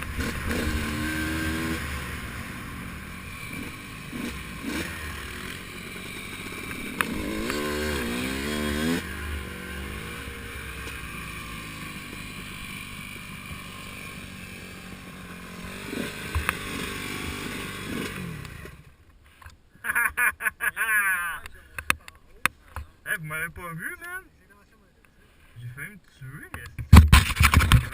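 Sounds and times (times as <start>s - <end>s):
dirt bike engine revving: 0.0s - 18.9s.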